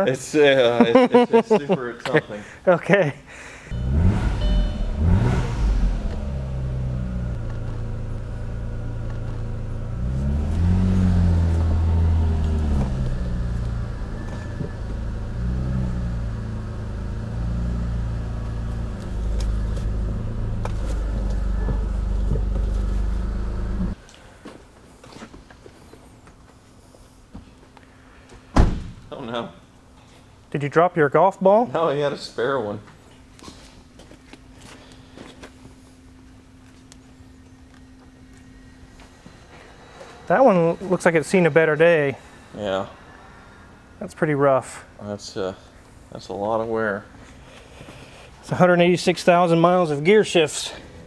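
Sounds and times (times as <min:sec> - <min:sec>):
car engine revving and idling: 0:03.7 - 0:24.0.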